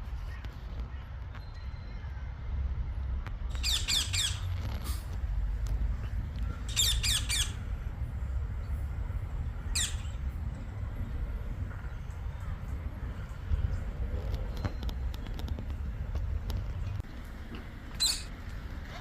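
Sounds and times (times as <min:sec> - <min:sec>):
low rumble: 0:02.3 - 0:17.4
bird harsh calls: 0:03.5 - 0:04.8, 0:06.0 - 0:07.8, 0:09.6 - 0:10.4.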